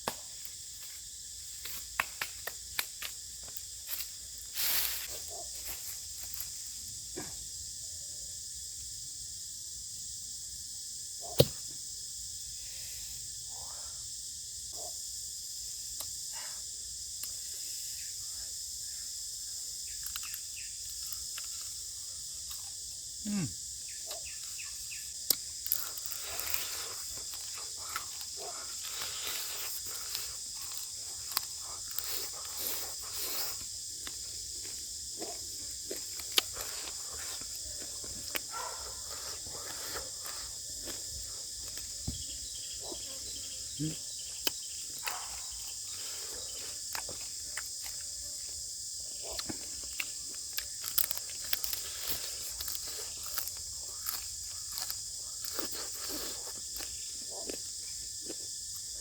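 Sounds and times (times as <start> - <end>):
insect chorus: 0.0 - 59.0.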